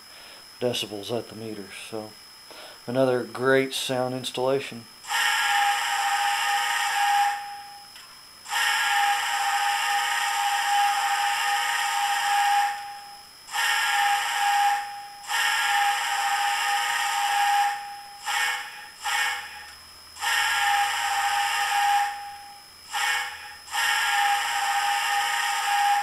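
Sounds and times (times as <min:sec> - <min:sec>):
steam whistle through small speaker: 0:05.1 - 0:07.7, 0:08.5 - 0:26.0.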